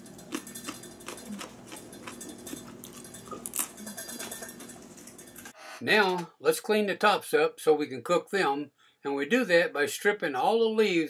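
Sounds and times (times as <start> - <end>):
person chewing raw radish: 0.0 - 4.8.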